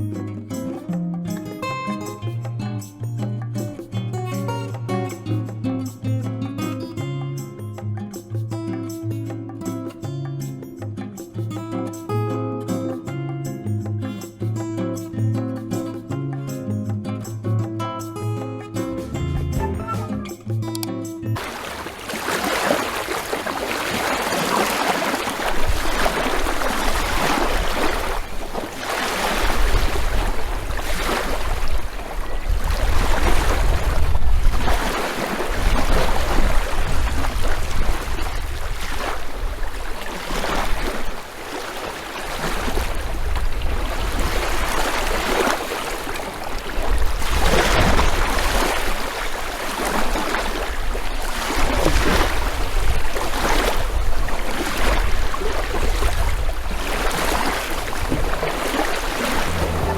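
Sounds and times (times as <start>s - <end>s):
sea waves breaking: 21.4s - 59.9s
wind on microphone: 21.4s - 59.9s.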